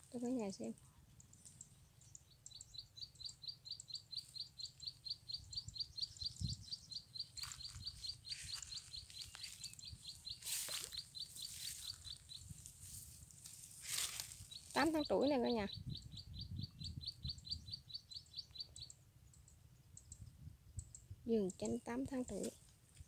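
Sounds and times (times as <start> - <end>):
small bird chirping rapidly: 0.1 - 22.6
leaves rustling: 7.3 - 15.1.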